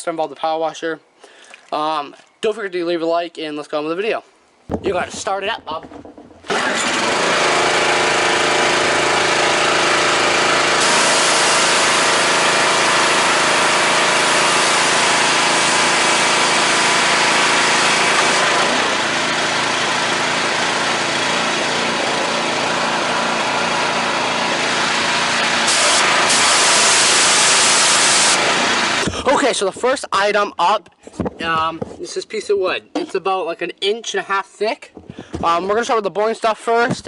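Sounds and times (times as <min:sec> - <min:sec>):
small gasoline engine running: 0:06.4 - 0:29.2.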